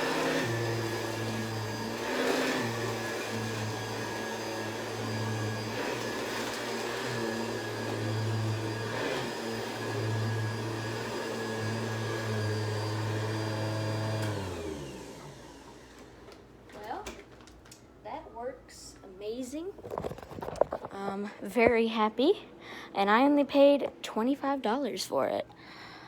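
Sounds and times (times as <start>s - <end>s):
vacuum cleaner running: 0.0s - 16.5s.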